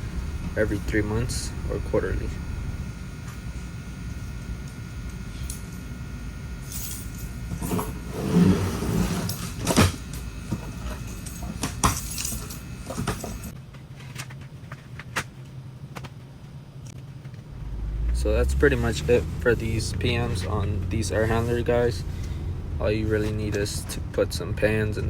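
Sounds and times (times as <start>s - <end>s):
steady background hum: 0.0s - 25.0s
air filters rustling and scraping: 6.6s - 17.5s, 18.2s - 25.0s.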